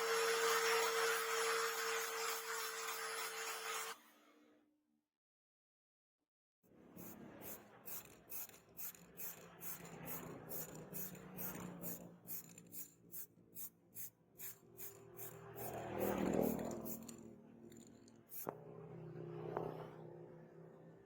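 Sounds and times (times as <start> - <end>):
knife rasping on abrasive: 14.0 - 18.5.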